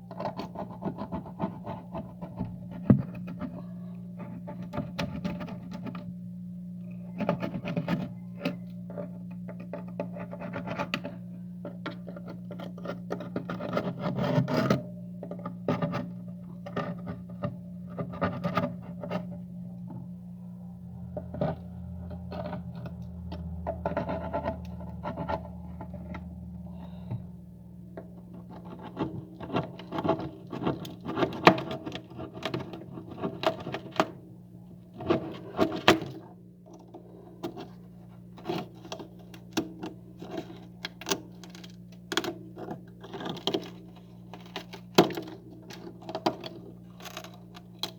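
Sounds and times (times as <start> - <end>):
low hum: 14.7 - 31.0.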